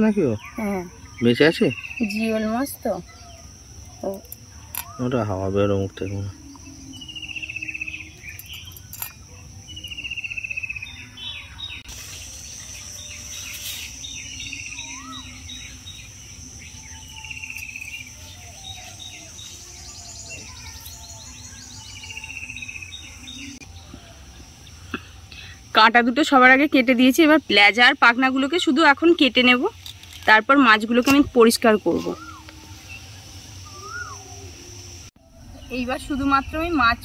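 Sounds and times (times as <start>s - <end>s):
high-pitched insect drone: 0.0s - 37.0s
bird trilled call: 12.9s - 16.1s, 31.6s - 36.9s.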